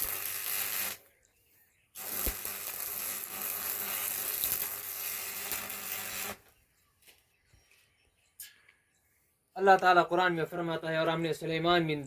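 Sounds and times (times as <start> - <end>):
welding arc crackling and buzzing: 0.0 - 1.0, 2.0 - 6.5.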